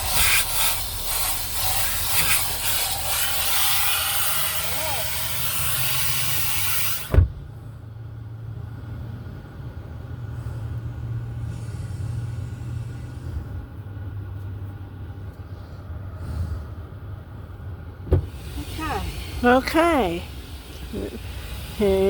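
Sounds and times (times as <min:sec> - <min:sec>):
loud hiss: 0:00.0 - 0:07.2, 0:18.2 - 0:19.6
car engine and road rumble: 0:00.0 - 0:22.0
sharp thump: 0:07.0 - 0:07.4, 0:18.0 - 0:18.4.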